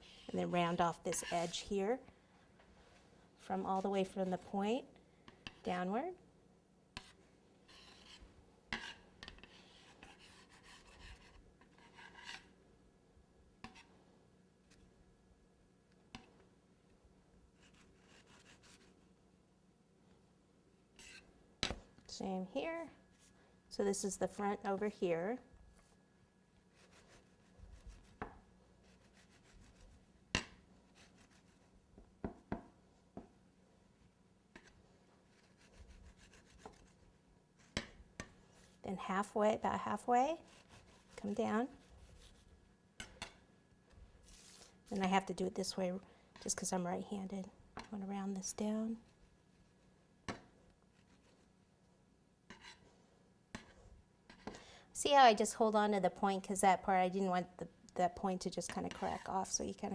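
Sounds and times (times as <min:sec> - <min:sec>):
knife scraping through cake: 0:00.0 - 0:01.7, 0:08.8 - 0:12.6, 0:34.6 - 0:37.1, 0:40.4 - 0:42.5, 0:52.5 - 0:52.9.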